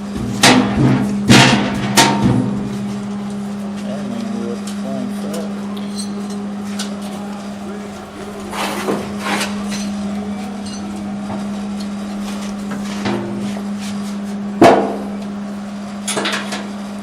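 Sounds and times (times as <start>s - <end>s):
steady low hum: 0.0s - 17.0s
metal knocks and clanks: 0.1s - 2.7s.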